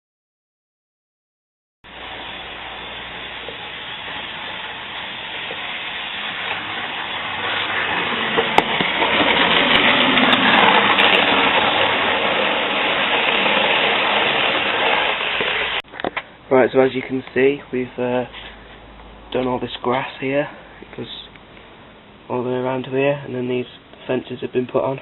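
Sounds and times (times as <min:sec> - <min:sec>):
model train motor whirring: 0:01.9 - 0:15.8.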